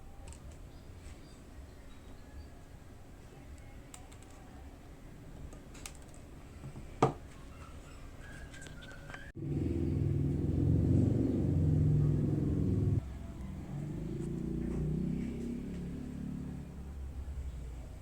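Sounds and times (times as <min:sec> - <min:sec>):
low rumble: 0:09.4 - 0:16.9.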